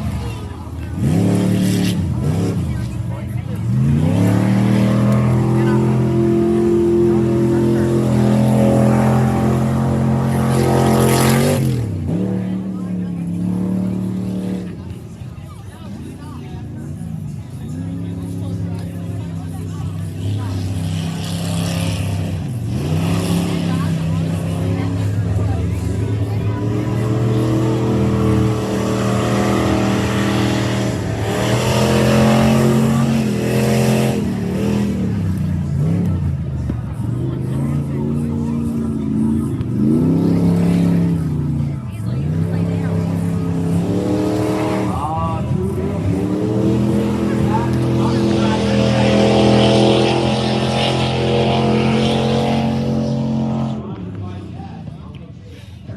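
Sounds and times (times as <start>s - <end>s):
race truck engines running hard: 0.0s - 55.9s.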